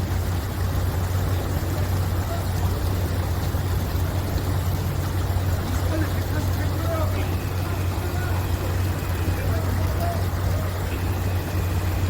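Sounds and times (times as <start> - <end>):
low engine drone: 0.0 - 12.0
noisy wash: 0.0 - 12.0
faint distant voices: 1.3 - 3.8, 5.4 - 12.0.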